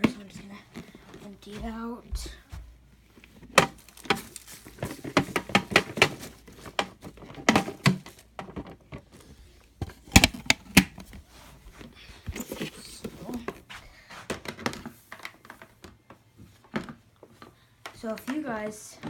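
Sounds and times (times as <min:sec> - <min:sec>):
plastic clicks and knocks: 0:09.8 - 0:11.1.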